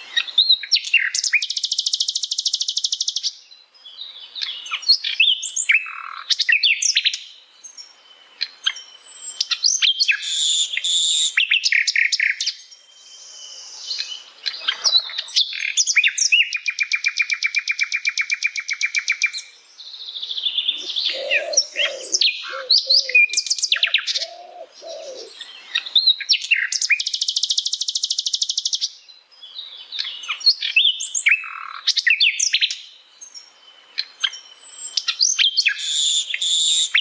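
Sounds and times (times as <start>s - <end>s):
flycatcher singing: 0.2s - 3.4s, 8.4s - 29.0s.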